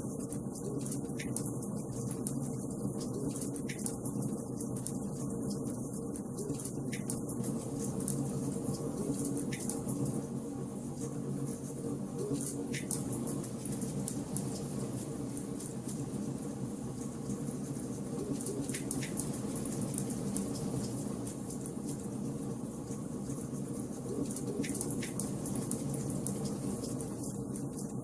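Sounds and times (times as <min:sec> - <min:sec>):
wood fire crackling: 0:00.1 - 0:28.0.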